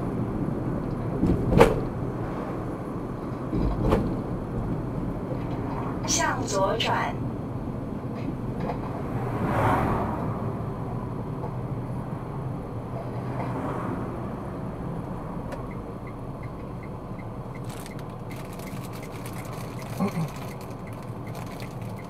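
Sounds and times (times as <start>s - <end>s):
car road and engine noise: 0.0s - 22.0s
turn signal ticking: 15.5s - 22.0s.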